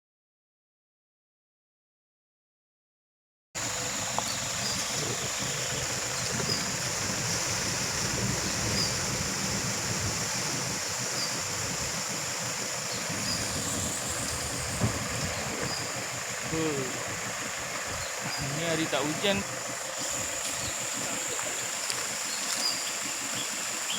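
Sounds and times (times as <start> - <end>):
faint chirps: 18.0 - 23.9.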